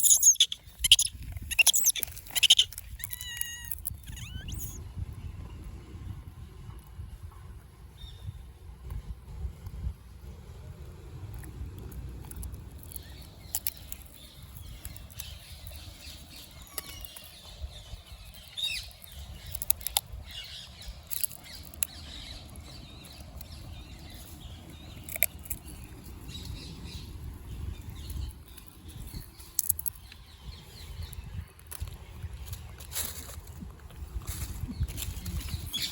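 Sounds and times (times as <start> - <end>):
faint high chirps: 0.0 - 4.8.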